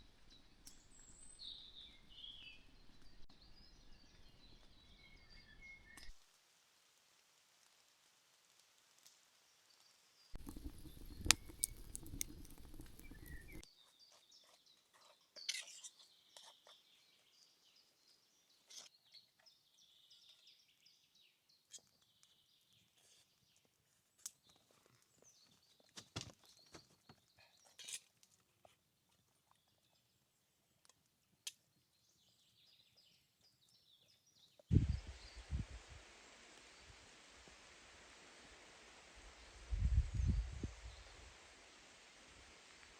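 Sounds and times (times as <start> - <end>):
small clicks and rustles: 7.0 - 16.8, 23.0 - 30.1
bird chirps: 10.4 - 13.7.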